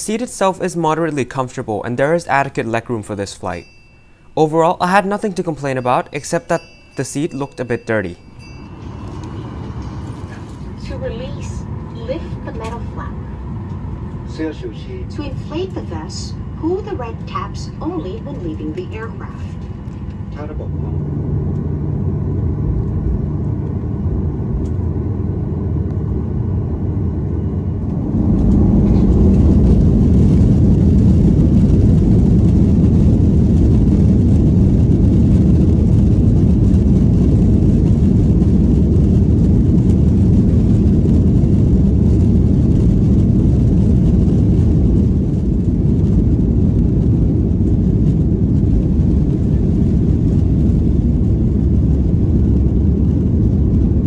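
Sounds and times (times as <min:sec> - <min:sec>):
jet engines rumbling in cabin: 0:00.0 - 0:03.9, 0:04.8 - 0:54.0.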